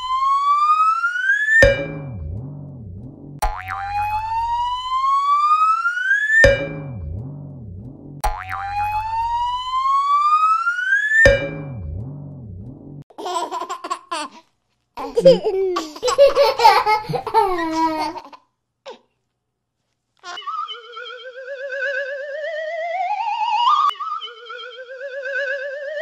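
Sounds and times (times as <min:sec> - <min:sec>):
wobbling warble: 0:01.6 - 0:05.2, 0:06.4 - 0:10.3, 0:11.1 - 0:13.0, 0:20.4 - 0:26.0
baby giggling: 0:13.1 - 0:14.4, 0:15.0 - 0:19.0, 0:20.2 - 0:20.7
whistle tone rising in pitch: 0:20.4 - 0:26.0.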